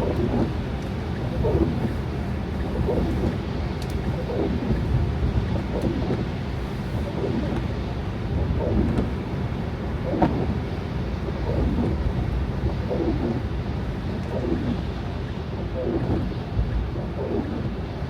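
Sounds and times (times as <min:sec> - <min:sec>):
car driving on snow: 0:00.0 - 0:10.6.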